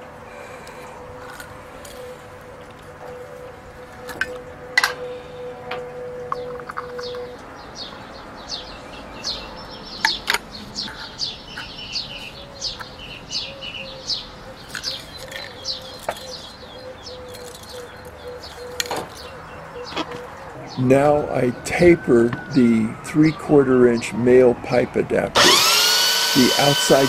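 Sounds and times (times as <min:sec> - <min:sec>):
small birds chirping: 0:06.4 - 0:21.9.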